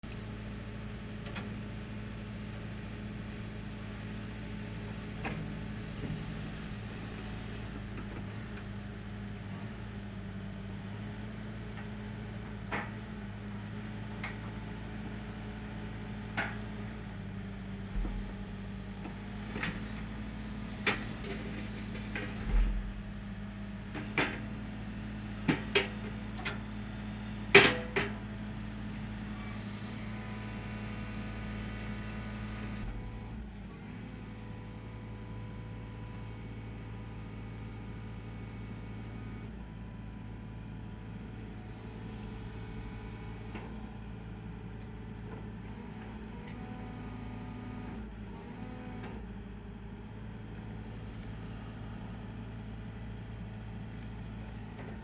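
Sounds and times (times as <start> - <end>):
diesel engine idling: 17.1 - 26.7.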